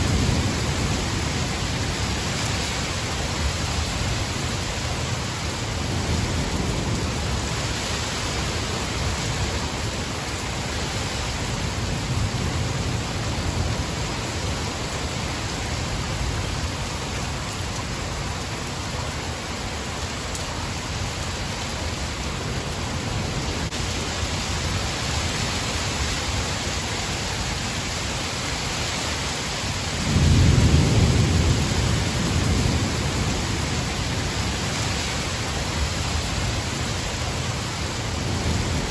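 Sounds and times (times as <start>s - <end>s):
thunder rumbling: 0.0s - 18.3s, 29.9s - 38.9s
heavy rain: 0.0s - 38.9s.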